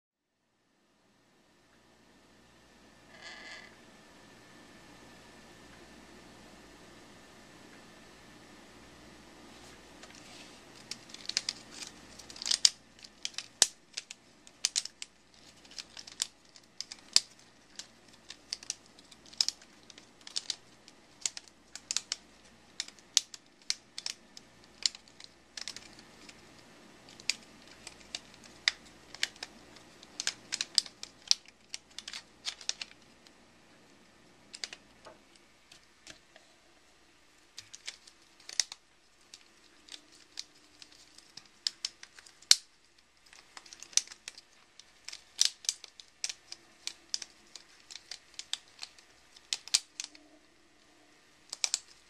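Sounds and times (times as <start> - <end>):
plastic puzzle segments clicking: 10.8 - 33.4, 34.5 - 36.2, 37.6 - 50.3, 51.4 - 52.0.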